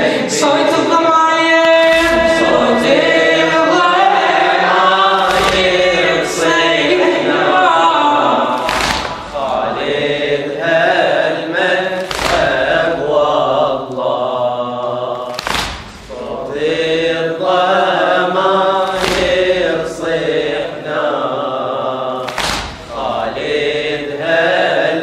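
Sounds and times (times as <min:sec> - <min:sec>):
voices chanting slow melody: 0:00.0 - 0:25.0
chest-beating thumps: 0:05.2 - 0:06.3, 0:18.9 - 0:19.7, 0:22.3 - 0:23.1.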